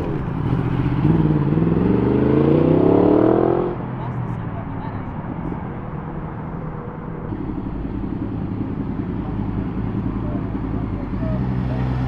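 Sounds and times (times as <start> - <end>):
motorcycle engine idling: 7.2 - 11.8.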